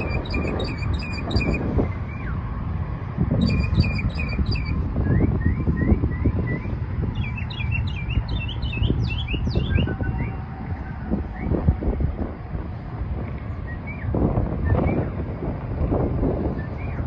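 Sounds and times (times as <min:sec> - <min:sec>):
mockingbird singing: 0:00.0 - 0:01.6, 0:03.4 - 0:04.8.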